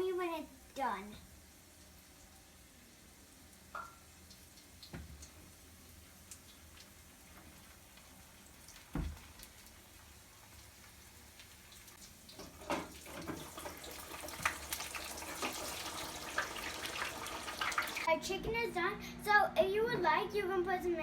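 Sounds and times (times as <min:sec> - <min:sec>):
chicken sizzling in hot oil: 0:00.0 - 0:18.1
thump: 0:08.9 - 0:09.2.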